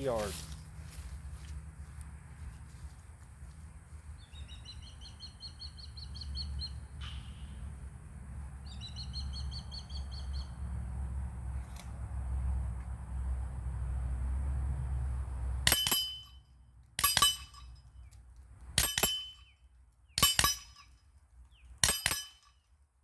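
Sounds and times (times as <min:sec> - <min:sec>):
songbird trilling: 0:08.6 - 0:10.6.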